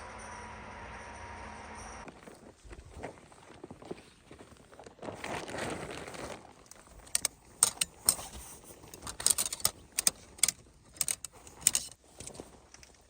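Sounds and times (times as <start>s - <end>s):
sharp clicks and clinks: 7.0s - 13.0s.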